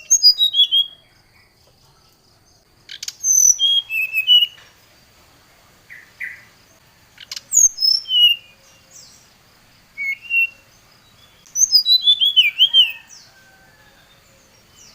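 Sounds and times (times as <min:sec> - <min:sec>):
flycatcher whistled song: 0:00.0 - 0:01.2, 0:02.9 - 0:04.7, 0:07.2 - 0:09.2, 0:10.0 - 0:13.4.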